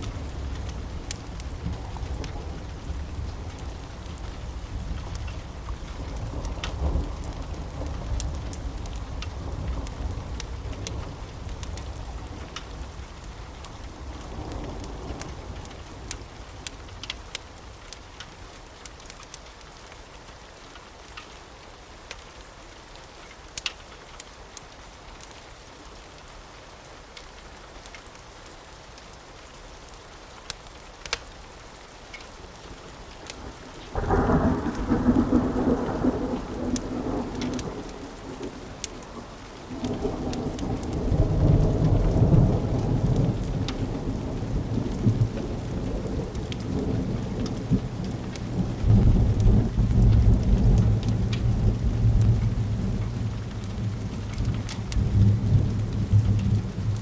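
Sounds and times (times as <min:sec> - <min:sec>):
thunder rumbling: 0:00.0 - 0:16.7, 0:32.8 - 0:57.0
rain falling: 0:00.0 - 0:57.0.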